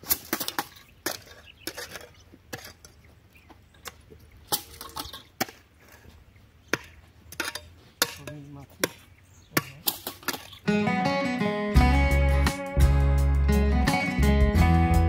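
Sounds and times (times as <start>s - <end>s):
hand tools striking stony soil: 0.0s - 3.1s, 3.8s - 6.1s, 6.7s - 10.6s.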